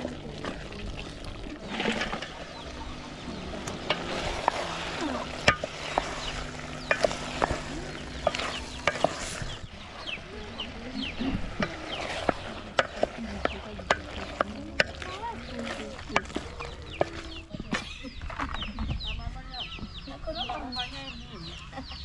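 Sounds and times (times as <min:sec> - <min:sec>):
food sizzling in a pot: 0:00.0 - 0:17.5
chickens clucking: 0:00.0 - 0:22.0.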